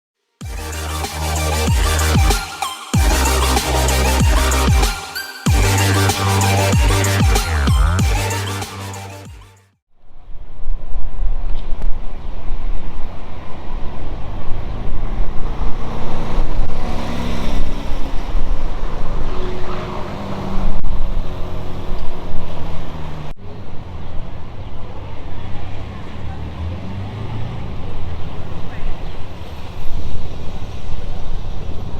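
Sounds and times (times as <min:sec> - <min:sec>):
car engines accelerating: 0:13.3 - 0:31.9.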